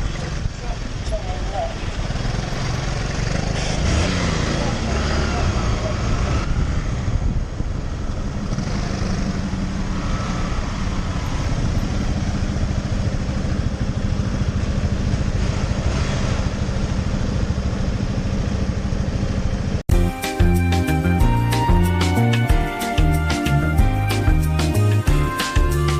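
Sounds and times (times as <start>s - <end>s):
wind and road noise: 0.0s - 19.9s
motorcycle engine running: 0.0s - 20.6s
music: 19.9s - 25.9s.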